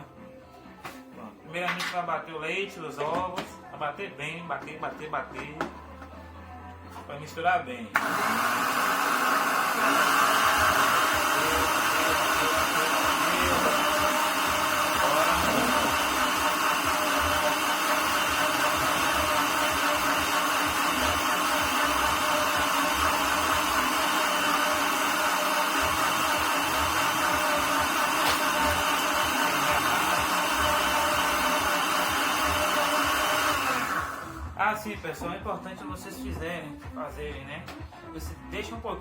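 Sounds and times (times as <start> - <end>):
blender motor running: 7.9 - 34.6.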